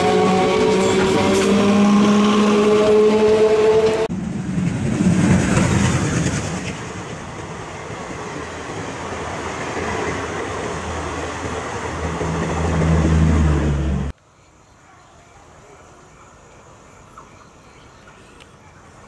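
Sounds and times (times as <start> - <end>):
train wheels rushing on rails: 0.0 - 14.1.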